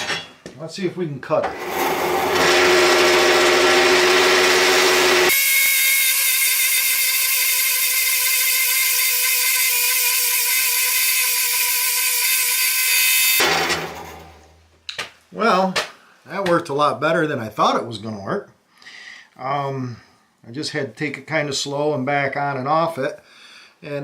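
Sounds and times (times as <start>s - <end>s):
bandsaw cutting metal: 1.4s - 14.4s.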